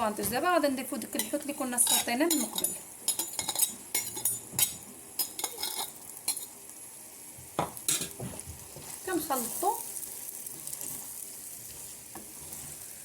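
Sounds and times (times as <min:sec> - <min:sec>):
faint frying sizzle: 0:00.0 - 0:13.0
utensil scraping a frying pan: 0:01.8 - 0:06.6, 0:07.9 - 0:13.0.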